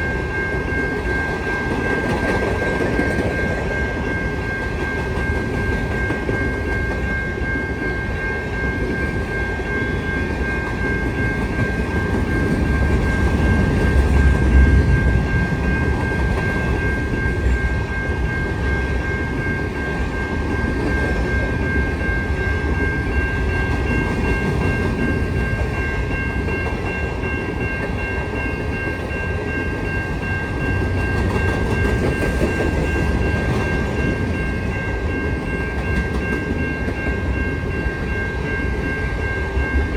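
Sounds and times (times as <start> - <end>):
train wheel clatter: 0.0 - 7.7, 22.7 - 38.0
freight train rumbling past: 0.0 - 39.9.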